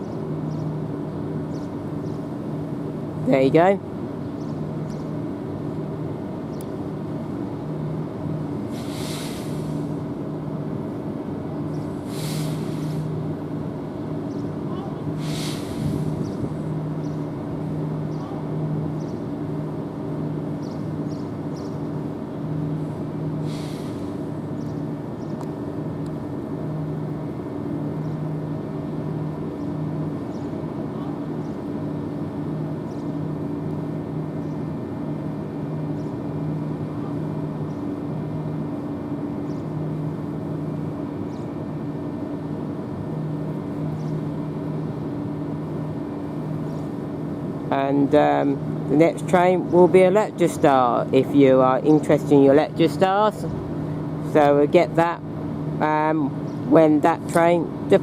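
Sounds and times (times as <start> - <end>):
pulsing train hum: 0.0 - 58.0
air hiss: 8.6 - 10.0, 11.8 - 13.2, 15.1 - 16.5, 23.4 - 24.4.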